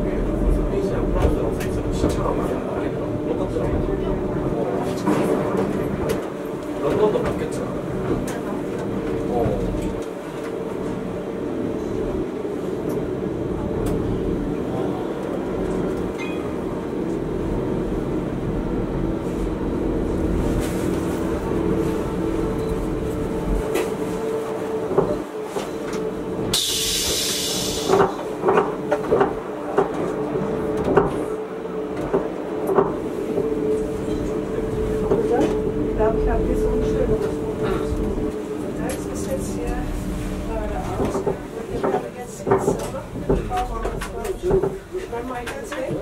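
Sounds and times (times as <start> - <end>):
electric train hum and whine: 0.0 - 46.0
brief hiss: 26.6 - 28.0.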